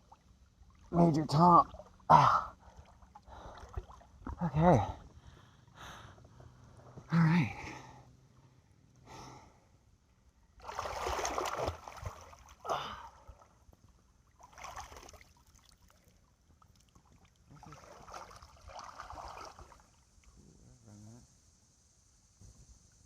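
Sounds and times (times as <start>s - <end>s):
lake water splashing: 0.0s - 4.4s, 10.6s - 13.6s, 14.3s - 20.0s.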